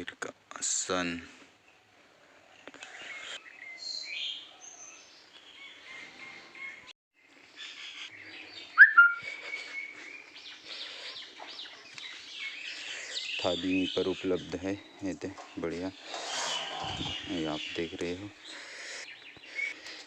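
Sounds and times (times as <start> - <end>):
birds chirping and whistling: 2.9 - 6.9, 7.6 - 20.0
loud sharp rising bird call: 8.8 - 9.3.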